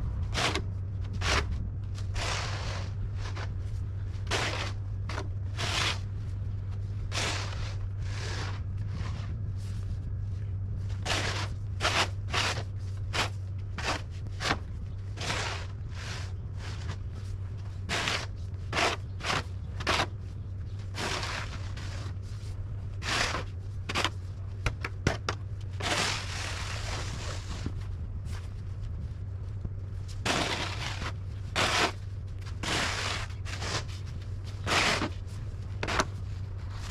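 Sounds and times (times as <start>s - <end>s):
steady low hum: 0.0s - 36.9s
footsteps crunching in snow: 0.2s - 24.6s, 25.4s - 36.9s.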